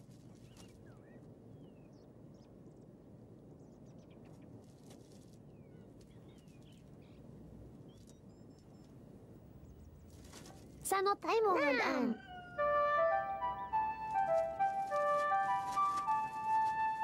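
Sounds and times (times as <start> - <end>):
low background rumble: 0.0 - 17.0
small birds chirping: 0.1 - 17.0
soft clicks and rustles: 10.0 - 10.9.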